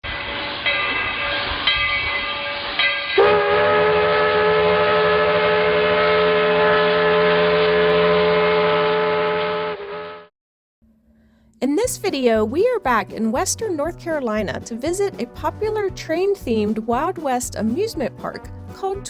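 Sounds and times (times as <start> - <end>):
steam locomotive whistle: 2.6 - 10.3.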